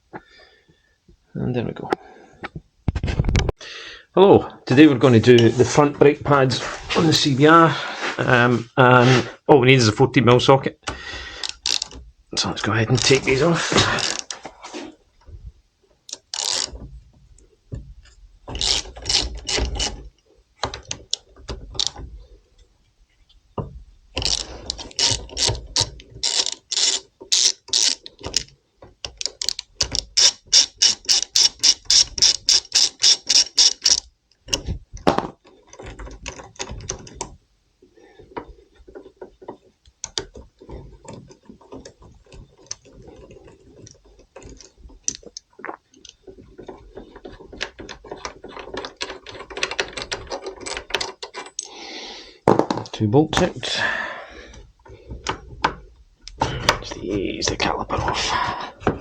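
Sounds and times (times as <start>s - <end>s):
ratchet wrench clicking: 11.4s - 12.0s, 16.1s - 16.8s, 18.5s - 20.0s, 24.2s - 28.5s, 29.2s - 34.1s.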